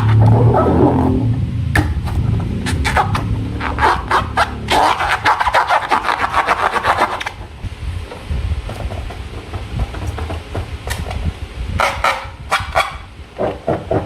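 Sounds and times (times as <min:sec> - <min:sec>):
slime rasping and crackling: 0:02.6 - 0:07.6.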